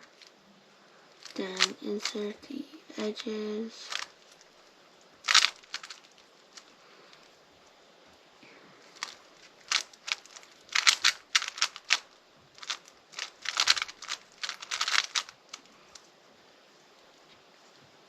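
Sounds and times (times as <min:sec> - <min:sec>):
plastic puzzle cube clacking: 0:01.2 - 0:02.3, 0:03.0 - 0:04.5, 0:05.2 - 0:07.3, 0:08.8 - 0:16.0.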